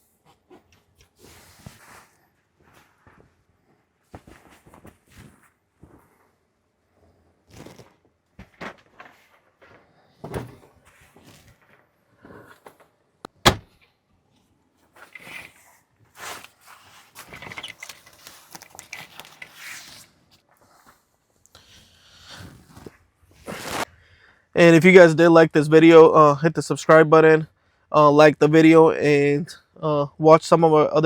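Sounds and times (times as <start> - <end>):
rustling: 14.9 - 21.0, 22.3 - 23.9.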